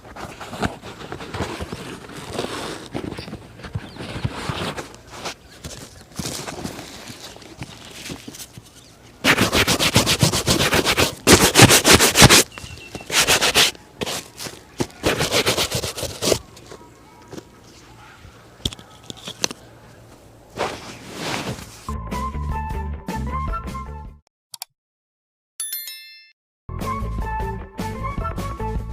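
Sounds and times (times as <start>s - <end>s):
brush strokes on leather shoe: 6.2s - 16.5s, 20.6s - 21.9s.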